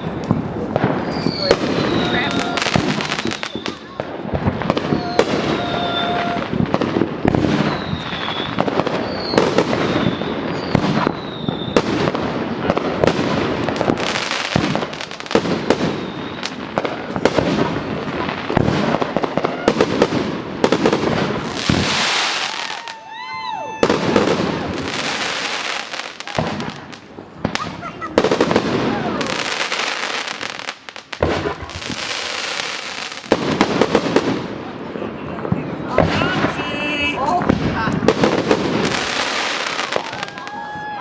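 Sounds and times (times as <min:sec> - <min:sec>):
firework whistles: 0:00.0 - 0:12.2, 0:13.7 - 0:17.8, 0:20.7 - 0:34.0
fireworks crackling and popping: 0:00.0 - 0:41.0.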